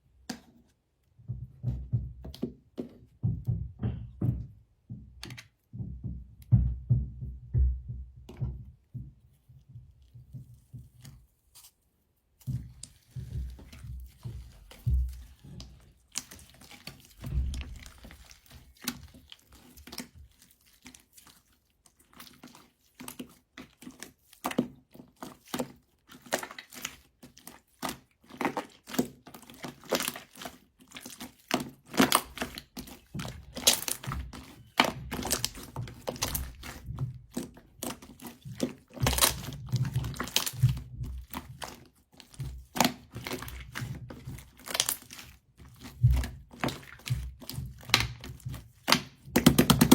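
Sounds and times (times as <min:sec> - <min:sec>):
soft thuds: 0:01.2 - 0:11.2, 0:17.2 - 0:18.0
sticky slime crackling pops: 0:31.2 - 0:41.8, 0:45.8 - 0:49.9.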